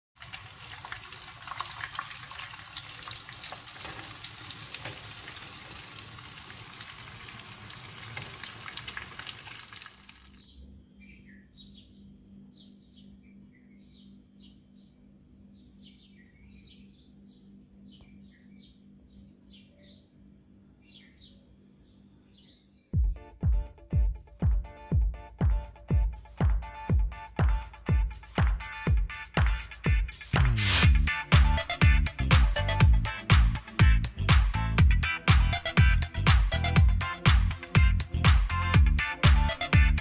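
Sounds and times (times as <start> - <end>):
food sizzling in hot oil: 0.2 - 10.3.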